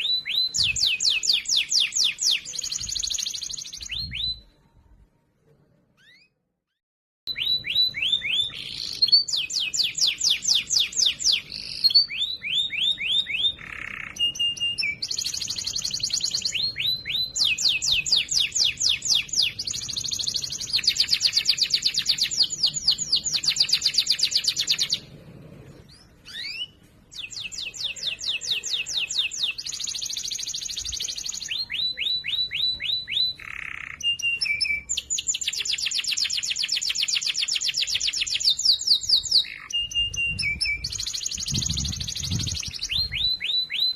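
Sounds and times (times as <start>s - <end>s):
canary singing trills: 0.0s - 4.6s, 6.0s - 43.9s.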